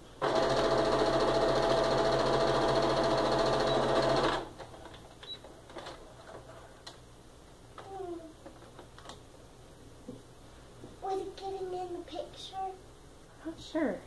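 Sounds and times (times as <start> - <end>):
sewing machine stitching: 0.2 - 4.5.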